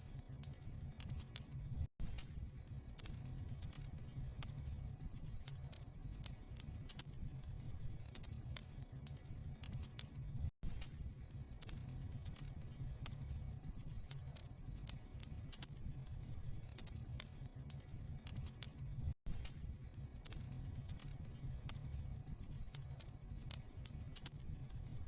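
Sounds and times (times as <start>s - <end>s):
low rumble of fire: 0.0s - 25.0s
fire crackling and popping: 0.2s - 25.0s.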